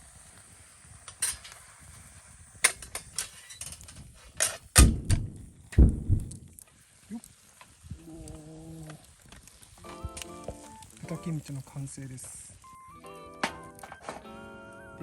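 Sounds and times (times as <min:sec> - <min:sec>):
heavy thumps: 0:04.8 - 0:06.4.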